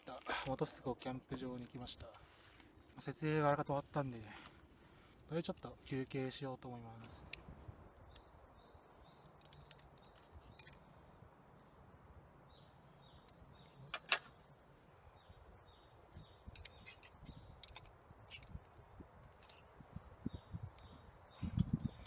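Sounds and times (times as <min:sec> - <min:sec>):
songbird singing: 0:05.0 - 0:22.0.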